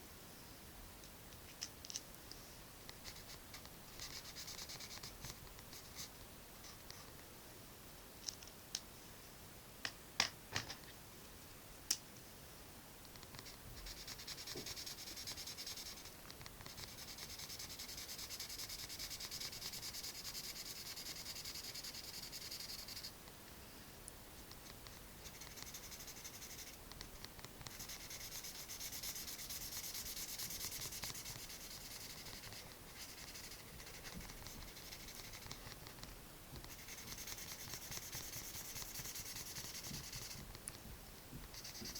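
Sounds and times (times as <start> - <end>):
pencil rubbing on paper: 3.0 - 7.0, 13.3 - 23.1, 24.6 - 26.8, 27.6 - 36.0, 36.6 - 40.4, 41.5 - 41.9.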